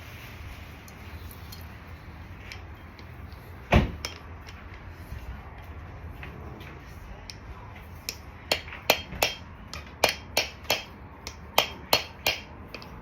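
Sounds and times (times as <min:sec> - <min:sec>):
hammer tapping metal: 0:08.0 - 0:13.0.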